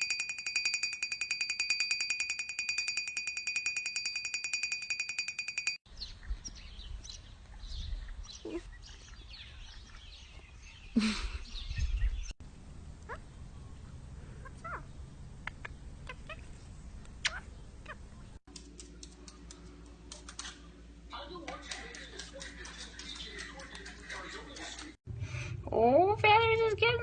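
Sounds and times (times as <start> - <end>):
telephone ringing trill: 0.0 - 5.8.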